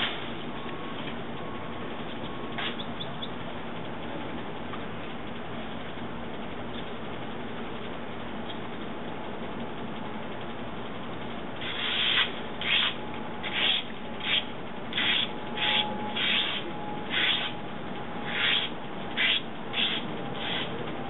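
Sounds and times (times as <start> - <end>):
steady background hum: 0.0 - 21.0
hand saw cutting wood: 11.6 - 17.5, 18.3 - 20.8.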